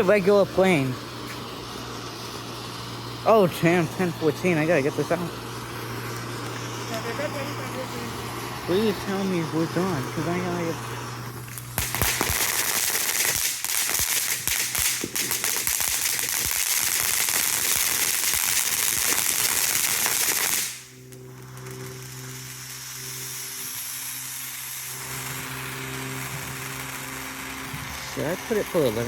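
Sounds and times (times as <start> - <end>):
low hum: 0.0 - 12.4
firework crackling pops: 0.0 - 29.0.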